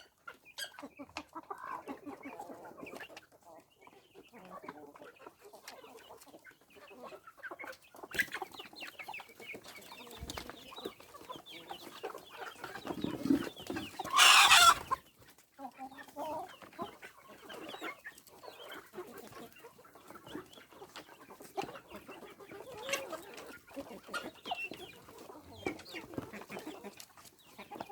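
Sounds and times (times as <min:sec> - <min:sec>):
chickens clucking: 0:00.0 - 0:27.9
short chicken calls: 0:14.0 - 0:15.0.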